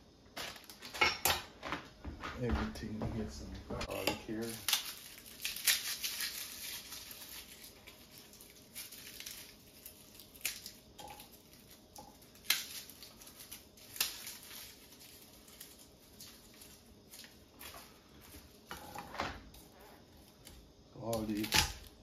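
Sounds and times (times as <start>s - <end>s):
papery crackling of garlic: 3.9s - 18.8s, 19.5s - 22.0s.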